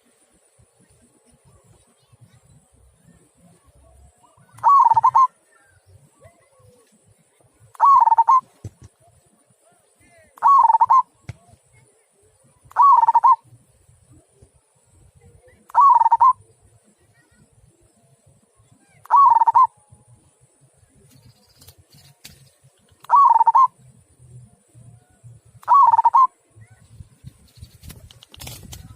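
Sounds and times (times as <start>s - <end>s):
dove cooing: 4.3s - 5.7s, 7.8s - 8.4s, 10.4s - 11.1s, 12.8s - 13.4s, 15.8s - 16.4s, 19.0s - 19.8s, 23.0s - 23.7s, 25.6s - 26.3s.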